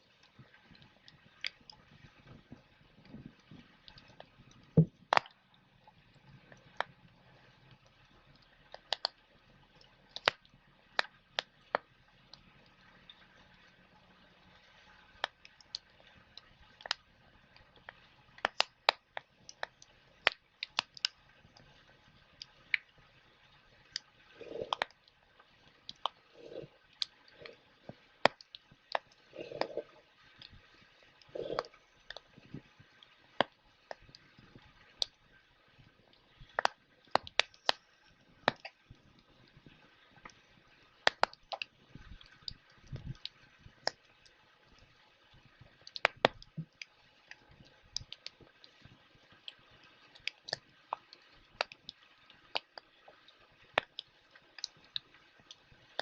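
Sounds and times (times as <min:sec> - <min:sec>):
wood fire crackling: 0:15.2 - 0:23.0, 0:23.7 - 0:44.0.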